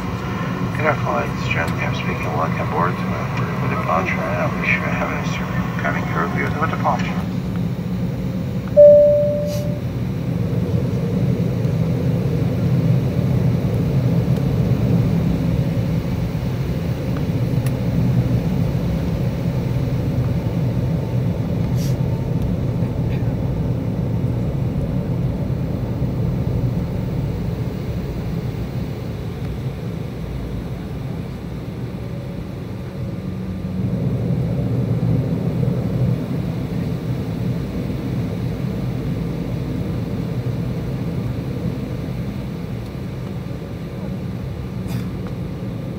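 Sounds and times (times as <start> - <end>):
jet engines humming: 0.0 - 45.9
chime tone: 8.8 - 9.8.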